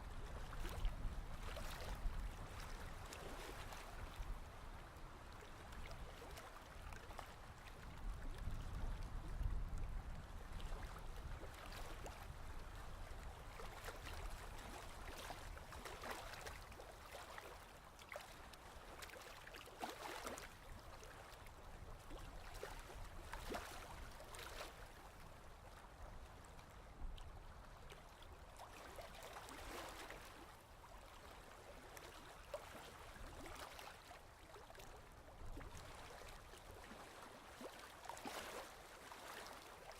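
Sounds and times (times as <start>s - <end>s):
ocean waves washing and lapping: 0.1s - 39.9s.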